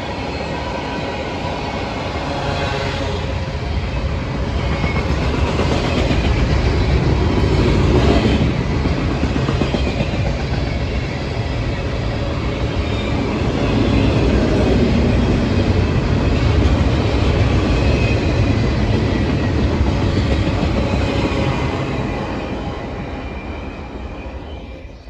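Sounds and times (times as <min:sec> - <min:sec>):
train wheels on rails: 0:00.0 - 0:25.0.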